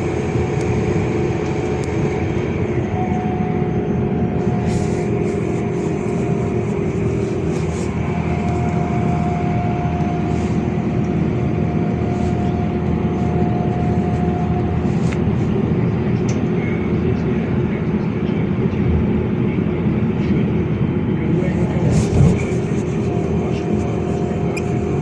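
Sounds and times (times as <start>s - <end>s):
thin whine: 0.0s - 16.2s, 21.2s - 25.0s
bus engine and road rumble: 0.0s - 25.0s.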